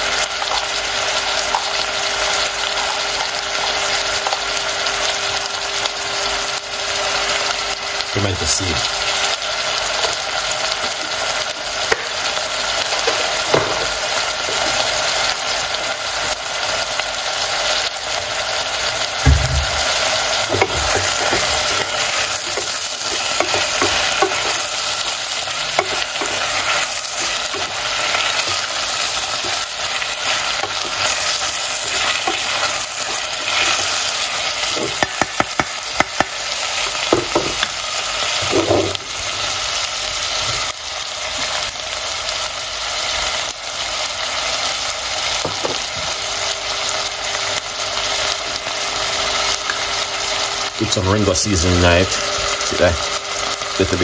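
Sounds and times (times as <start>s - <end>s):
vegetables sizzling in a pan: 0.0s - 54.0s
wooden spoon scraping a pan: 19.7s - 34.0s.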